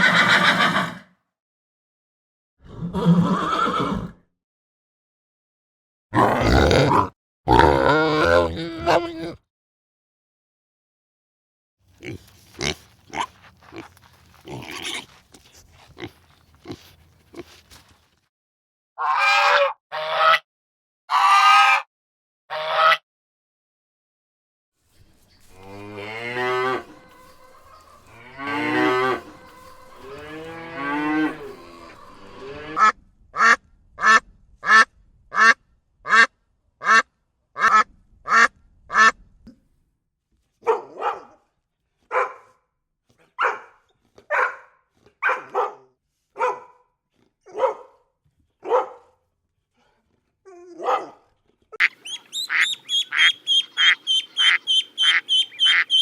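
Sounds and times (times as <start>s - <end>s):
cows mooing: 25.4s - 32.9s
ducks quacking: 25.4s - 37.0s, 37.6s - 39.2s, 51.8s - 56.0s
short repeated animal calls: 26.6s - 34.8s, 51.8s - 56.0s.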